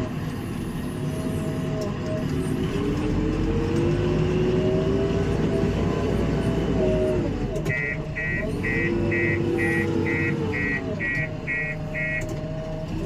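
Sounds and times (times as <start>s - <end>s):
diesel engine revving under load: 0.0s - 13.0s
reversing alarm beeping: 7.7s - 12.3s.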